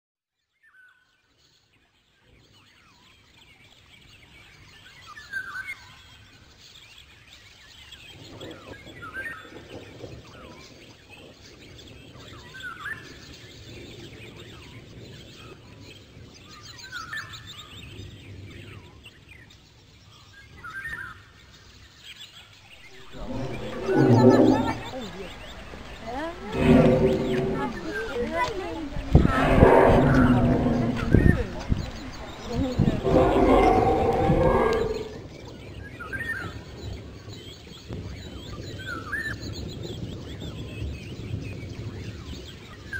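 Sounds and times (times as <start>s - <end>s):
songbirds singing: 0.5s - 42.9s
low outdoor background noise: 21.2s - 42.9s.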